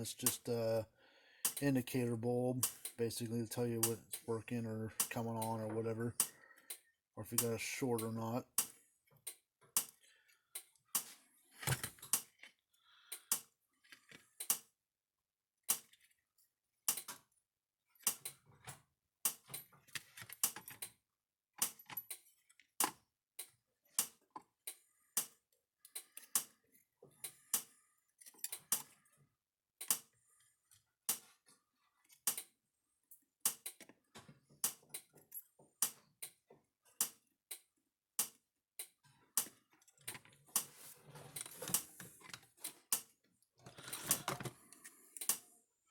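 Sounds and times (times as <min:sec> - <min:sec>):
small tools clicking and tapping: 0:01.4 - 0:01.8, 0:02.6 - 0:03.0, 0:04.9 - 0:14.7, 0:16.9 - 0:17.4, 0:18.0 - 0:21.0, 0:21.6 - 0:29.2, 0:29.8 - 0:45.5.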